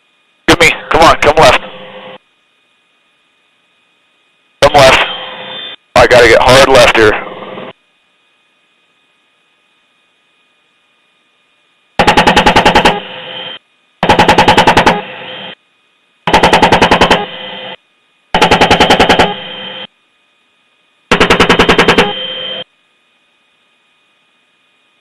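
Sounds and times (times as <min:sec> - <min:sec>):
chain gun firing bursts: 0:12.0 - 0:13.0, 0:14.0 - 0:15.0, 0:16.3 - 0:17.3, 0:18.4 - 0:19.4, 0:21.1 - 0:22.1.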